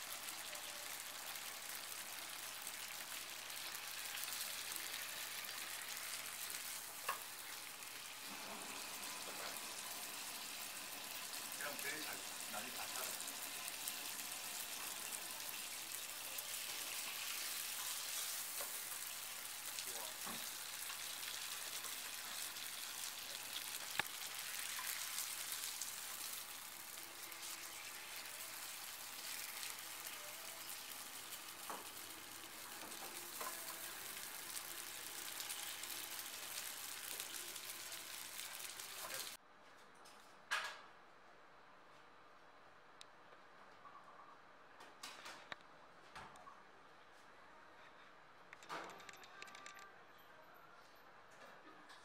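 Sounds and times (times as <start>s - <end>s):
pastry sizzling in oil: 0.0s - 39.4s.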